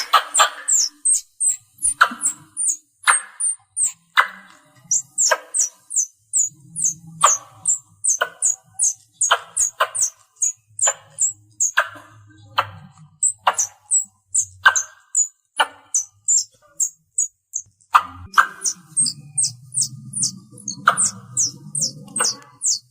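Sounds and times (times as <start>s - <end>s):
squirrel harsh click: 0.0s - 12.0s, 12.6s - 17.3s
squirrel chirping: 0.0s - 22.9s.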